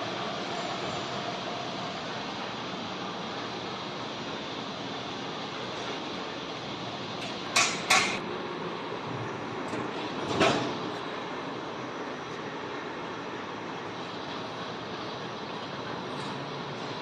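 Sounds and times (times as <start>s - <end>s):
sharp metallic clacks: 7.2s - 8.2s.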